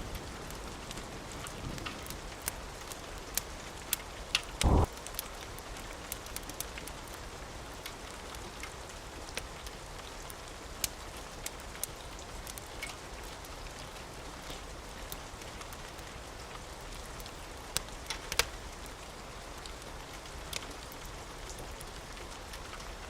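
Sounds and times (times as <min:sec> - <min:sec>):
rain hiss: 0:00.0 - 0:23.0
wood fire crackling and popping: 0:00.1 - 0:23.0
loud low thump: 0:04.6 - 0:04.9.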